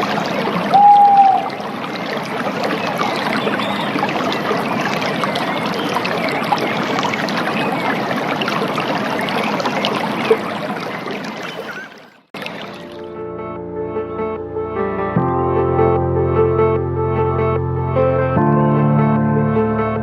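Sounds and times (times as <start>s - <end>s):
running water: 0.0s - 13.2s.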